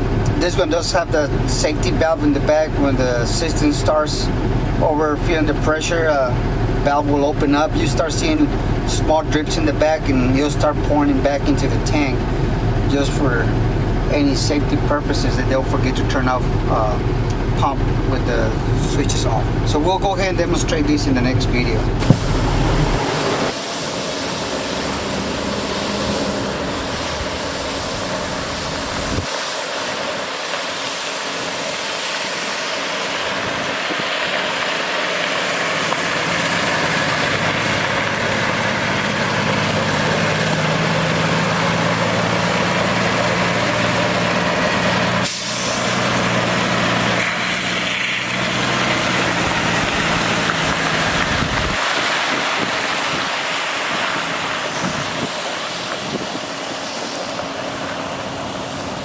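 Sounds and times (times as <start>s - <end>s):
diesel truck engine running: 0.0s - 59.0s
steady rushing hiss: 21.5s - 59.0s.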